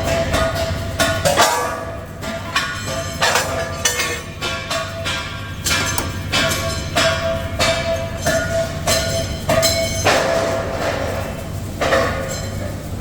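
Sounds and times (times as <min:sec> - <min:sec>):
low machine hum: 0:03.2 - 0:10.1
steel part struck ringing: 0:03.5 - 0:08.5.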